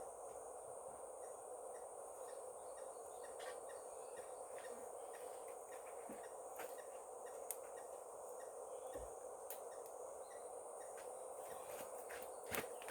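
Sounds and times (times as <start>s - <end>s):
high insect drone: 0.0s - 12.9s.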